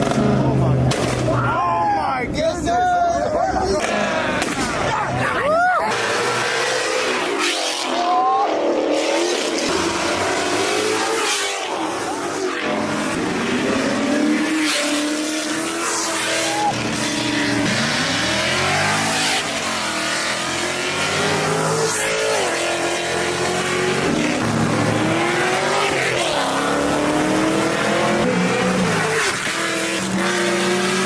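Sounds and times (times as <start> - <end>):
car engines revving hard: 0.0 - 1.6, 3.2 - 31.0.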